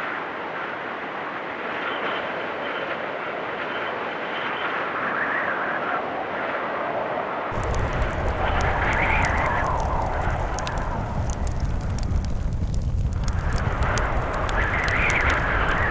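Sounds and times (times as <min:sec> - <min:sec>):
blizzard wind blowing: 0:07.5 - 0:15.9.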